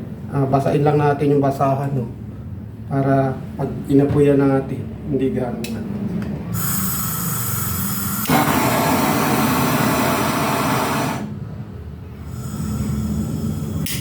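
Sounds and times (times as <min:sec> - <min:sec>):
gas torch hissing: 0:06.5 - 0:11.4, 0:12.1 - 0:14.0.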